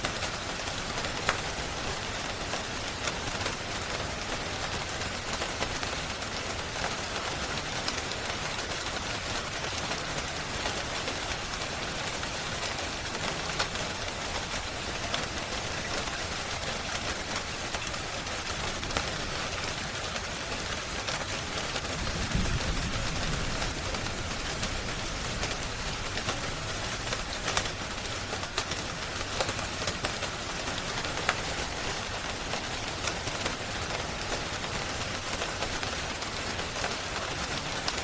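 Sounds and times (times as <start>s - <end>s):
rain hiss: 0.0s - 38.0s
wood fire crackling: 11.0s - 37.0s.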